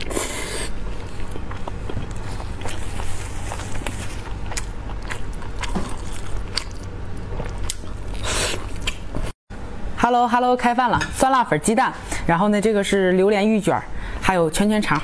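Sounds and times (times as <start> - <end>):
person chewing meat: 0.0 - 9.1
low steady hum: 0.0 - 15.0.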